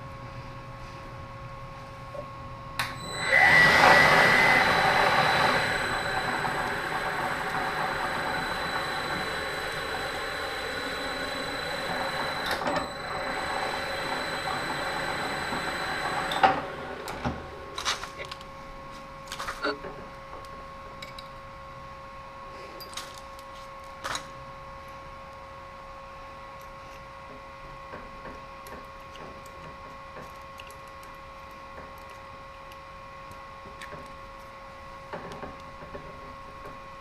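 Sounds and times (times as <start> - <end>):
electric motor whining: 3.0 - 17.6.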